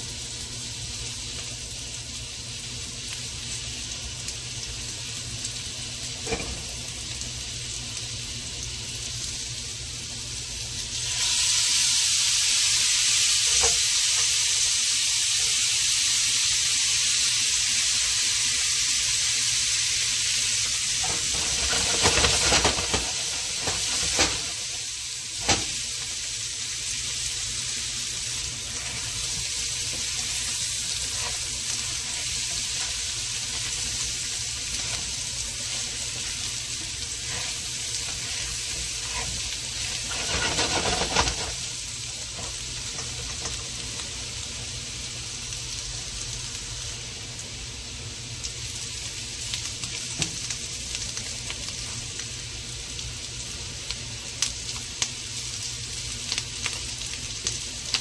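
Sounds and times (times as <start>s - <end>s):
potatoes sizzling in a skillet: 0.0s - 58.0s
utensil stirring in skillet: 21.0s - 44.0s.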